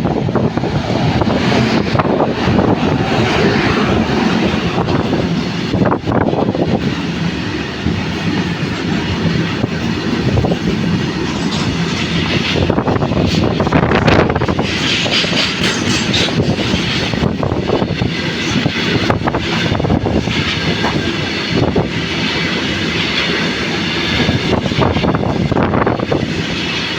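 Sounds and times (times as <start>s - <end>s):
freight train wheels clattering: 0.0s - 26.9s.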